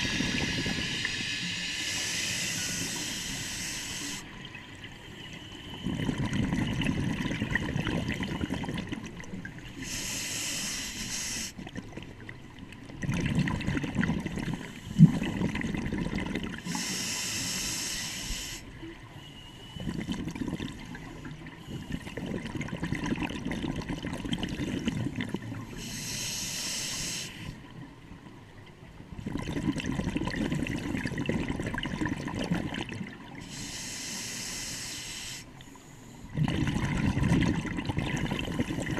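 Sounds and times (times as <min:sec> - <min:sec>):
regulator inhalation hiss: 0:00.0 - 0:04.4, 0:09.8 - 0:11.6, 0:16.7 - 0:18.7, 0:25.7 - 0:27.6, 0:33.4 - 0:36.3
exhaled air bubbling: 0:00.0 - 0:05.0, 0:05.6 - 0:17.9, 0:19.8 - 0:26.2, 0:29.1 - 0:33.9, 0:36.3 - 0:38.9.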